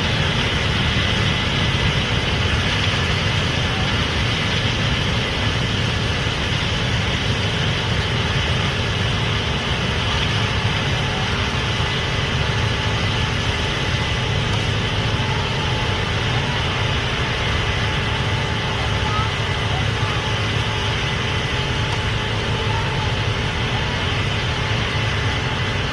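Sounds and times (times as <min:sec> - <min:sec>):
combine diesel drone: 0:00.0 - 0:25.9
mechanical whir: 0:00.0 - 0:25.9.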